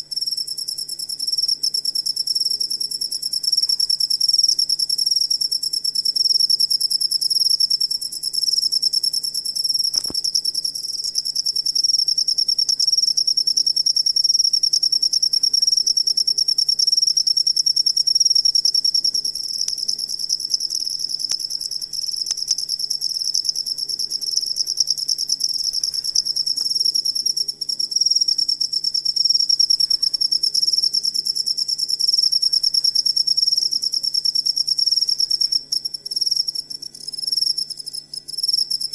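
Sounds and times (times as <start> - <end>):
cricket chirping in a fast trill: 0.0 - 38.9.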